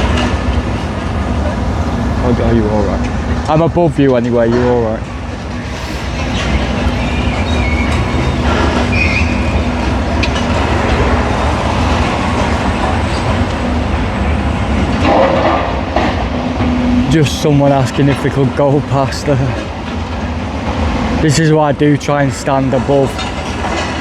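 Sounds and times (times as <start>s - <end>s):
diesel engine drone: 5.0s - 24.0s.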